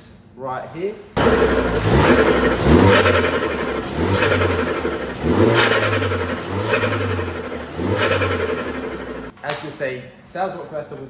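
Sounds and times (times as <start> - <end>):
car engine revving: 1.2 - 9.3
loud engine intake noise: 1.2 - 9.3.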